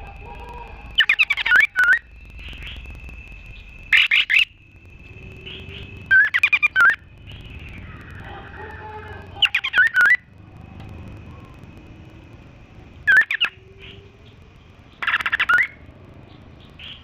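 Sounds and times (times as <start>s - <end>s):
faint steady high tone: 0.0s - 16.0s
songbird rapid sharp chirps: 1.0s - 8.2s, 9.3s - 10.3s, 13.1s - 17.0s.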